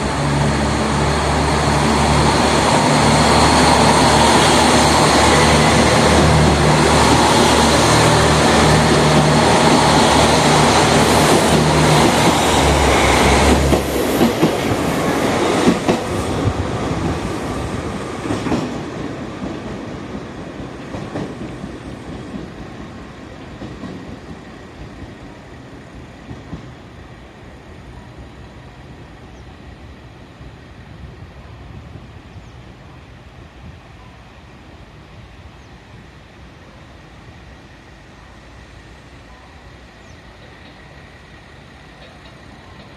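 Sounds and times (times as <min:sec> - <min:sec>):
train wheels rolling: 0:00.0 - 0:27.1
diesel railcar engine drone: 0:00.0 - 0:42.9.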